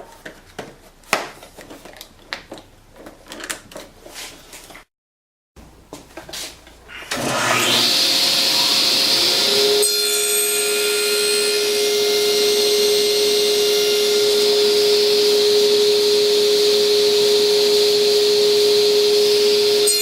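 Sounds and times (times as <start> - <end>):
table saw motor whine: 6.9 - 20.0.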